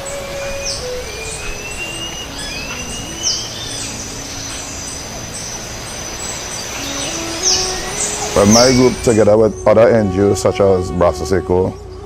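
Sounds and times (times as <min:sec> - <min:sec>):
long rising bird whistles: 0:00.0 - 0:10.1
sharp downward bird calls: 0:00.0 - 0:10.6
descending bird notes: 0:00.0 - 0:12.0
high thin tone: 0:06.7 - 0:11.0.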